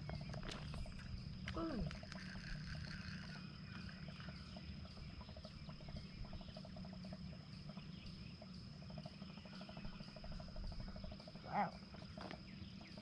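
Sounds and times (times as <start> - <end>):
insect chirps: 0.0 - 13.0
insects trilling: 0.0 - 13.0.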